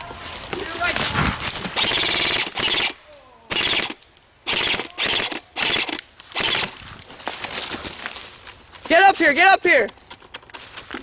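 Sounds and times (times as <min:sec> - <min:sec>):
airsoft gun firing bursts: 0:01.8 - 0:06.8.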